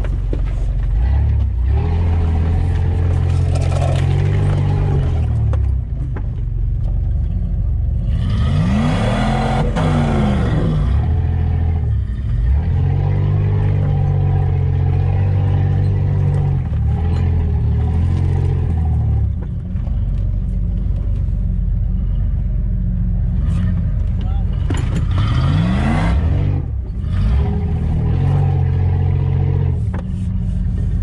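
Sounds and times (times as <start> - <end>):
engine revving heard from cab: 8.0 - 19.4, 23.2 - 31.0.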